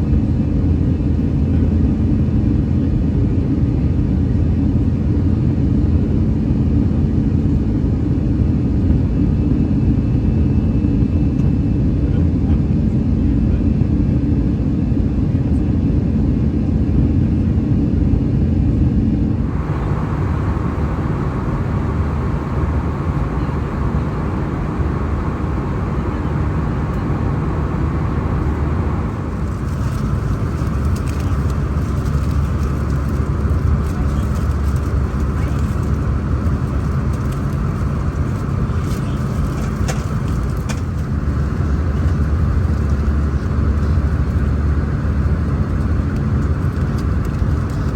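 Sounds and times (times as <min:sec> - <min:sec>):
airplane cabin engine roar: 0:00.0 - 0:47.9
faint clicks and rattles: 0:29.3 - 0:44.0.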